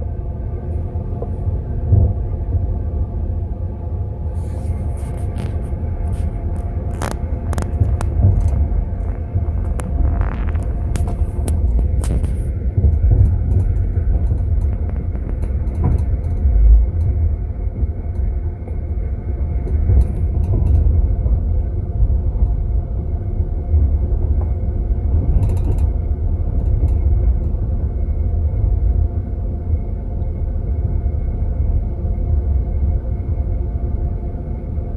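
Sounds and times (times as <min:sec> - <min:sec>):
moving train rumble: 0:00.0 - 0:34.9
faint clicks and creaks: 0:04.7 - 0:17.3, 0:19.6 - 0:21.0, 0:25.2 - 0:27.6.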